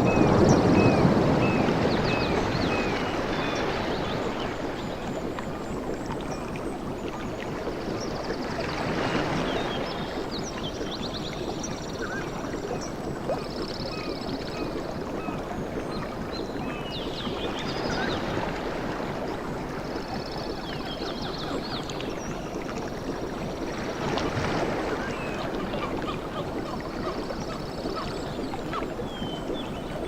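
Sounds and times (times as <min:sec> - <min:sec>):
waves washing on beach: 0:00.0 - 0:05.8.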